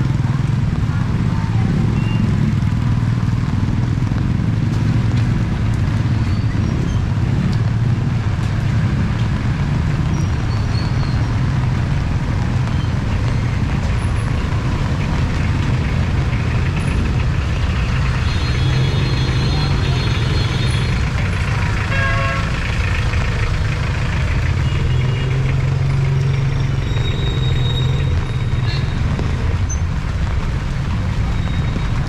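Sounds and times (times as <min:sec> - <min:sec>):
road vehicle engines rumbling: 0:00.0 - 0:32.0.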